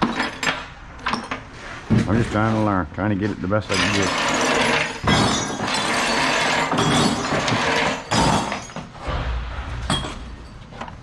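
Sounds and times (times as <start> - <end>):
scrap metal clattering into a bin: 3.7 - 9.1.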